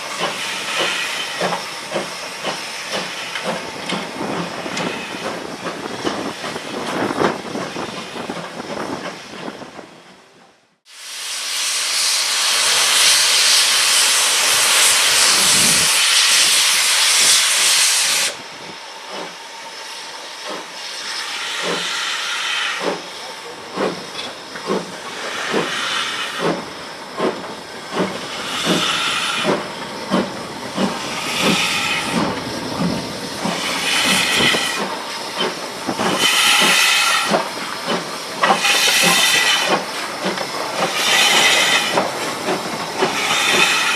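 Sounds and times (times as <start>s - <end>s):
steam locomotive chuffing beats: 0.0s - 9.8s, 11.0s - 43.9s
loud steam hiss: 0.0s - 9.9s, 10.9s - 43.9s.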